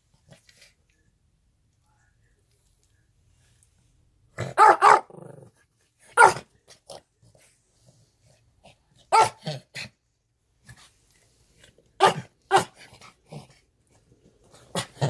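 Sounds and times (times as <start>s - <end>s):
small dog barking: 4.4s - 5.3s, 6.1s - 6.5s, 9.1s - 9.5s, 12.0s - 12.9s.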